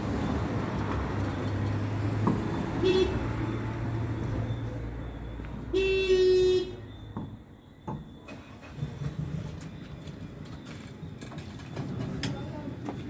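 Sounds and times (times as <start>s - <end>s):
vehicle rumble: 0.0s - 13.0s
car horn toot: 2.8s - 3.3s, 5.7s - 6.8s.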